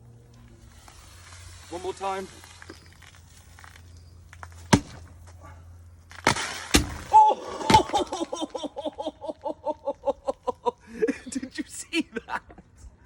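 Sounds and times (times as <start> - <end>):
bottle rocket spraying hiss: 0.6 - 3.0
person laughing: 7.2 - 12.7.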